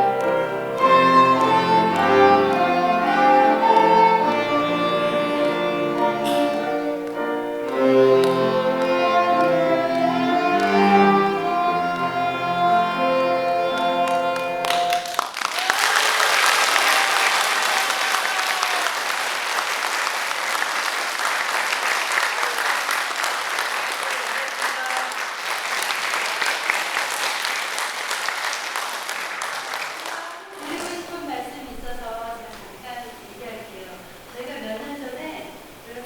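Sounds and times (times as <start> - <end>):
audience applauding: 0.0 - 11.4, 13.6 - 31.3
violin and cello chord: 0.0 - 15.0.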